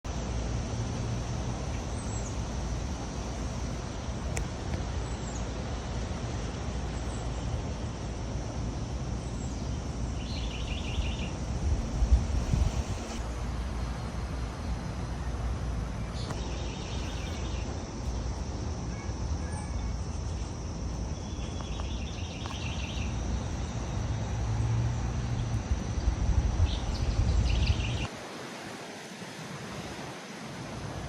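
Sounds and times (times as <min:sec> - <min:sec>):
high insect drone: 0:00.1 - 0:31.0
wind rumble on microphone: 0:09.7 - 0:16.4, 0:21.0 - 0:28.1.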